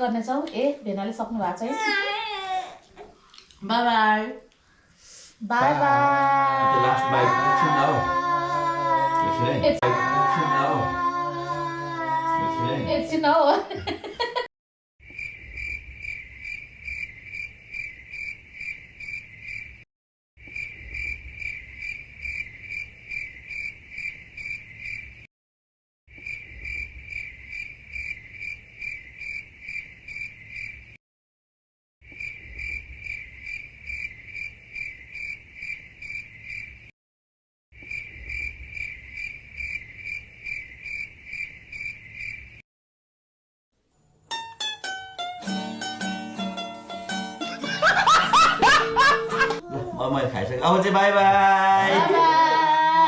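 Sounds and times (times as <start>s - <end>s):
cricket chirping: 15.0s - 19.8s, 20.4s - 25.3s, 26.1s - 31.0s, 32.0s - 36.9s, 37.8s - 42.6s.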